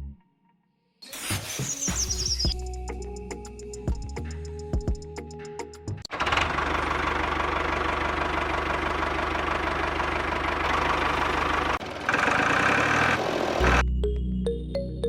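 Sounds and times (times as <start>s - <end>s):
motor running with rattle: 6.1s - 13.8s.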